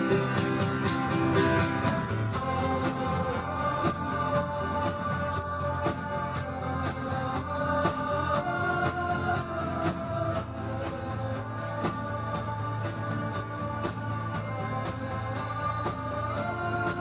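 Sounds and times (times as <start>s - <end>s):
guitars: 0.0s - 17.0s
steady drum beat: 0.0s - 17.0s.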